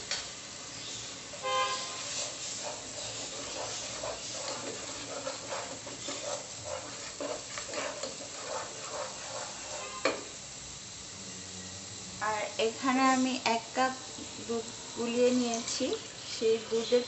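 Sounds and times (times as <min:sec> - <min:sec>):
spices sizzling in pot: 0:00.0 - 0:17.0
spatula scraping pot: 0:01.5 - 0:10.3, 0:15.2 - 0:16.1.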